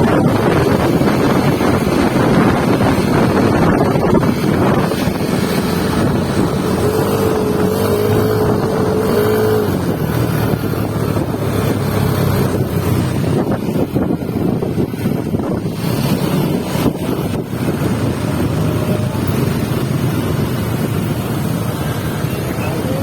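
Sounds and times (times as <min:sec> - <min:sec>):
vehicle engine running: 0:00.0 - 0:23.0
wind noise on microphone: 0:00.0 - 0:23.0.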